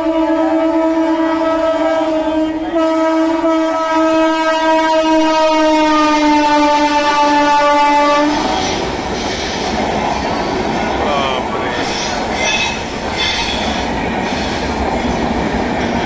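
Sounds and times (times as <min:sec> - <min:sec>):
train horn blast: 0:00.0 - 0:08.8
train passing at high speed: 0:00.0 - 0:16.0.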